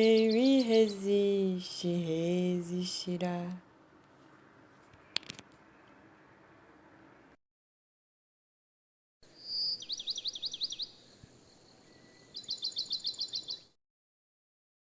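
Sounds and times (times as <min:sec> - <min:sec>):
songbird singing: 0:00.0 - 0:03.6, 0:09.3 - 0:13.8.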